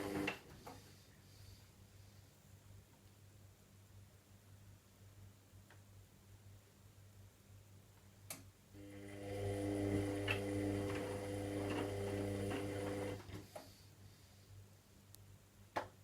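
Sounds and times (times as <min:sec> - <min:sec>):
washing machine motor humming: 0:00.0 - 0:00.4, 0:08.8 - 0:13.3.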